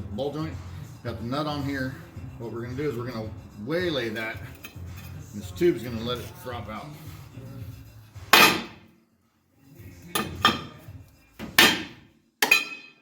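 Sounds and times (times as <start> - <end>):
hammer striking steel: 8.3 - 8.8, 10.2 - 10.8, 11.5 - 13.0.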